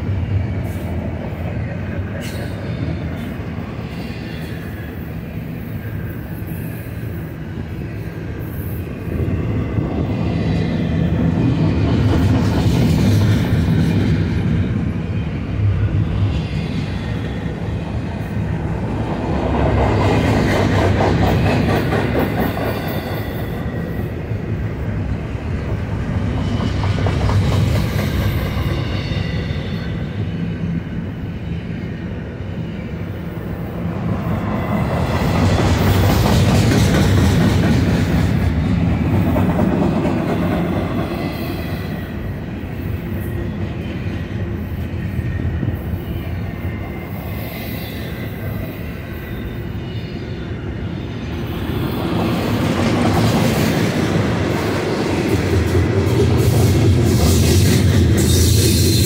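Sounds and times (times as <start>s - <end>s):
train wheels rumbling on rail: 0.0s - 59.0s
high wheel squeal: 22.3s - 24.1s.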